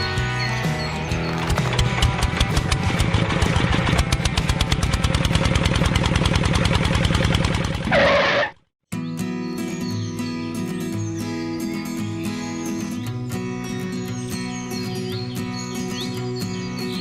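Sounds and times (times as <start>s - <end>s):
small engine puttering: 1.2s - 8.6s.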